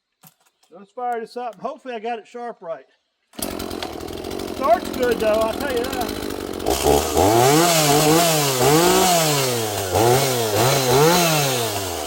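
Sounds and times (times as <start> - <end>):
chainsaw engine revving: 3.4 - 12.0.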